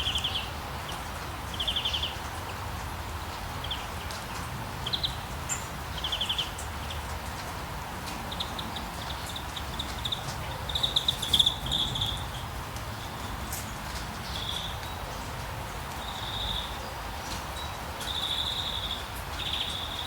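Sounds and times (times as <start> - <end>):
rain hissing: 0.0 - 20.0
birds chirping in trills: 8.1 - 13.5.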